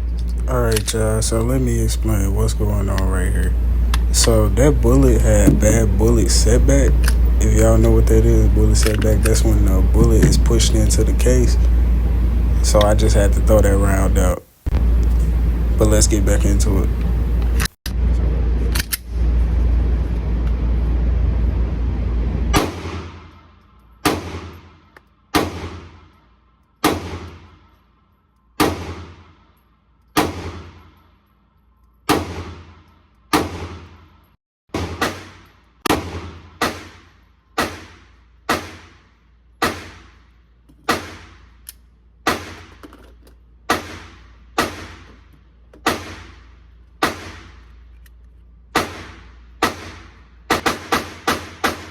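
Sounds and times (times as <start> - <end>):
loud low rumbling: 0.0 - 23.4
handgun shots echoing: 22.6 - 23.4, 24.0 - 26.2, 26.8 - 27.8, 28.6 - 29.6, 30.2 - 31.1, 32.1 - 34.1, 34.7 - 40.2, 40.9 - 41.5, 42.2 - 42.8, 43.7 - 45.2, 45.8 - 46.4, 47.0 - 47.7, 48.8 - 51.9.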